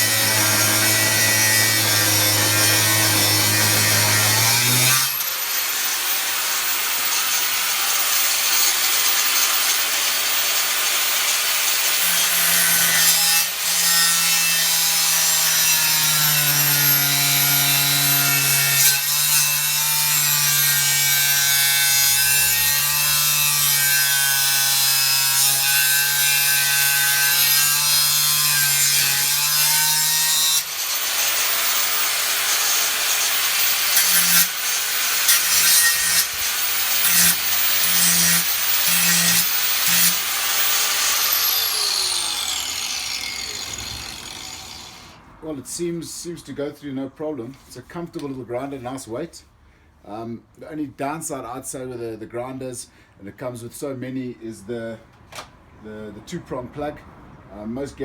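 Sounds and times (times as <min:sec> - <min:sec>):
cutting disc grinding metal: 0:00.0 - 0:45.2
angle grinder whine: 0:30.7 - 0:45.2.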